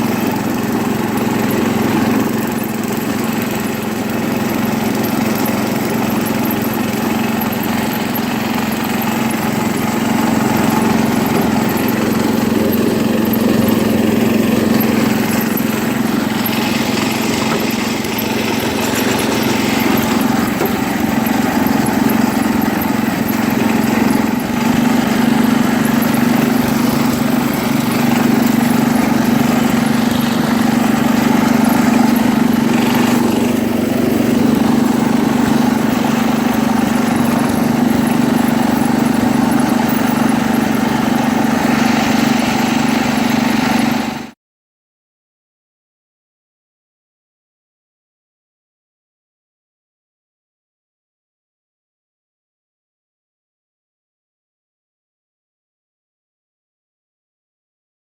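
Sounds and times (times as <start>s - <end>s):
garden tractor engine droning: 0.0s - 44.4s.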